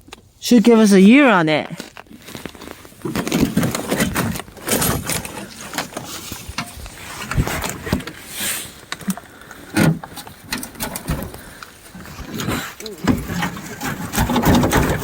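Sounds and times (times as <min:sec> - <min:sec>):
truck door knocks and scrapes: 0:13.1 - 0:15.0.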